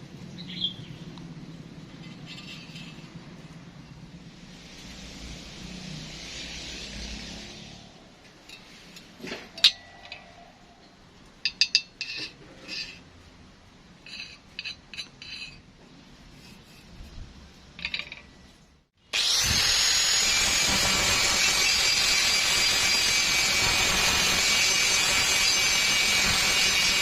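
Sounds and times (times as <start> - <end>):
metal pieces clinking: 17.8 - 18.4
power tool whining: 19.1 - 27.0.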